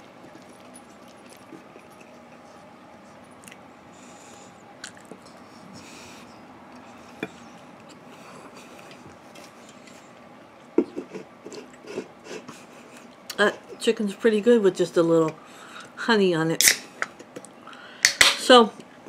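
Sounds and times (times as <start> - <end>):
person chewing food: 0.0 - 3.7, 6.7 - 13.4.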